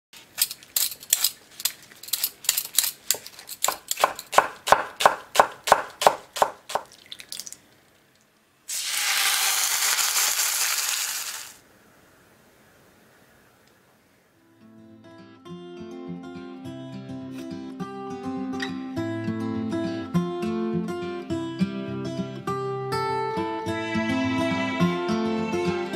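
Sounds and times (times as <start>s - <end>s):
knife chopping on wooden board: 3.1s - 6.9s
meat sizzling in a frying pan: 8.7s - 11.6s.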